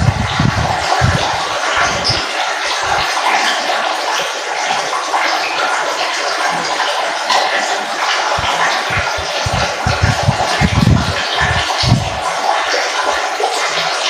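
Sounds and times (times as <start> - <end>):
low rumbling: 0.0 - 2.2, 8.4 - 12.3
water trickling: 0.0 - 14.0.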